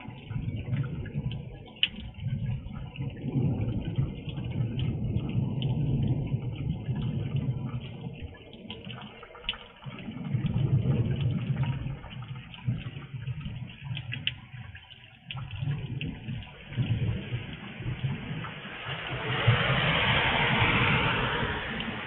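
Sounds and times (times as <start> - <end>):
low rumble: 0.0 - 8.4, 15.4 - 22.0
drops ticking near microphone: 0.0 - 18.6
heavy rain and water runoff: 0.0 - 22.0.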